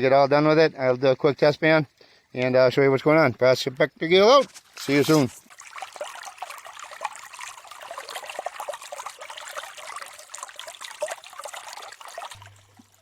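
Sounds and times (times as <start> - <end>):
creek water babbling: 4.2 - 13.0.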